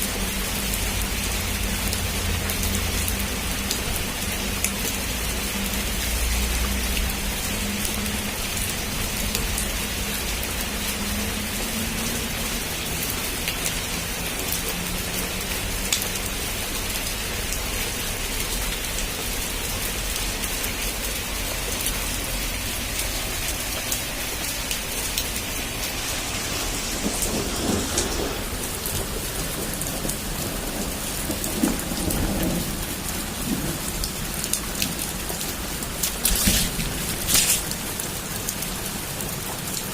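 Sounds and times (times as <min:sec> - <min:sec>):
heavy rain falling: 0:00.0 - 0:39.9
thunder rumbling: 0:22.6 - 0:38.7.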